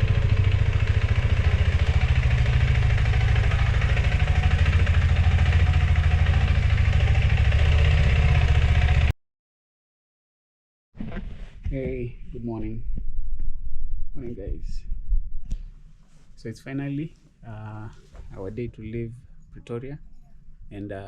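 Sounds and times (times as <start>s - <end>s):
motorcycle engine idling: 0.0s - 9.1s.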